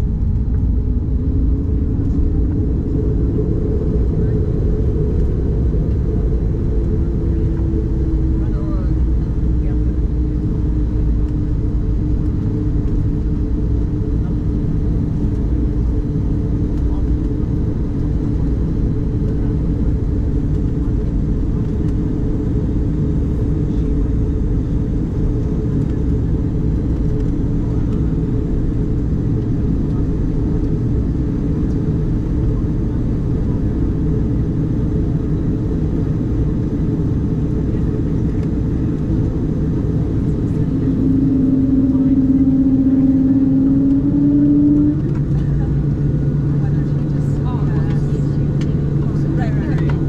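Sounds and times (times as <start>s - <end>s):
airliner cabin rumble: 0.0s - 50.0s
humming tone rising in pitch: 40.0s - 45.4s.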